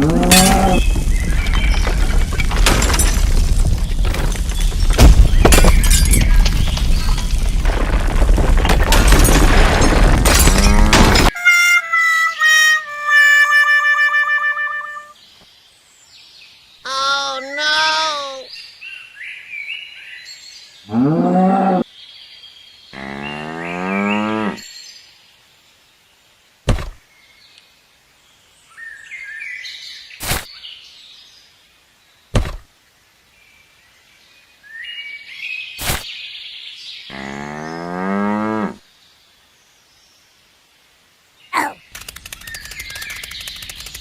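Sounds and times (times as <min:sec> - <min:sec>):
sharp knocks: 0:26.7 - 0:27.0, 0:32.4 - 0:32.7.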